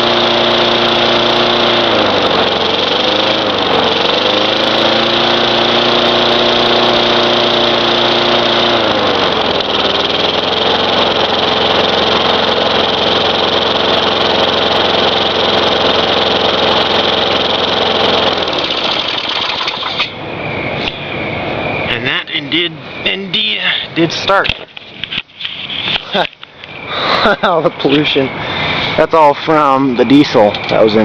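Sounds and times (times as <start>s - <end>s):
lawn mower engine running: 0.0s - 20.3s.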